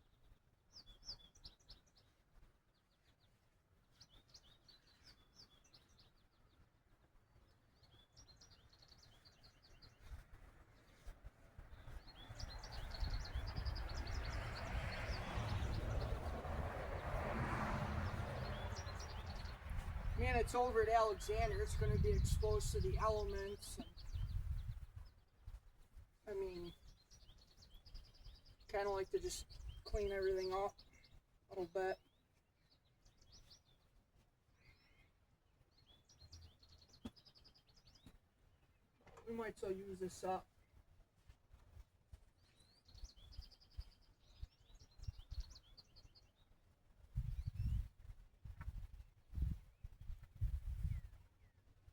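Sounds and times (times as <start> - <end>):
small birds chirping: 0.0 - 17.2, 18.0 - 51.9
vehicle passing: 13.7 - 20.2.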